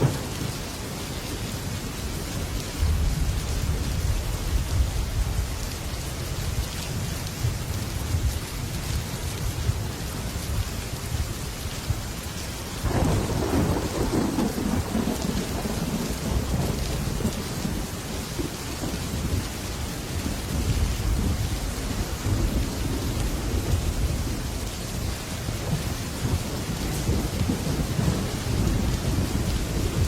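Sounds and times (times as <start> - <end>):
thunder rumbling: 0.0 - 0.7, 2.3 - 5.7, 12.8 - 30.0
heavy rain on a metal roof: 0.0 - 30.0.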